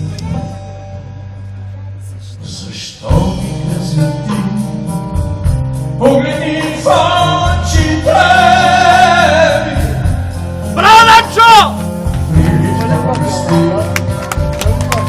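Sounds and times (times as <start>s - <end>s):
bass line: 0.0s - 15.0s
man singing with vibrato: 2.2s - 14.0s
rock band playing: 7.5s - 15.0s.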